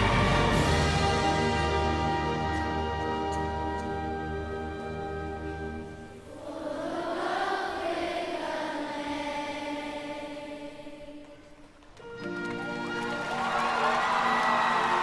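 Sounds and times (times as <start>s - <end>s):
choir singing: 0.0s - 2.8s, 5.1s - 11.6s.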